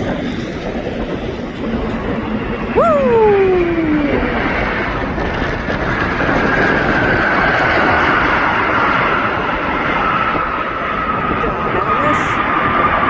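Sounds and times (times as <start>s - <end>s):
aircraft engine passing: 0.0s - 13.0s
wind noise on microphone: 0.0s - 13.0s.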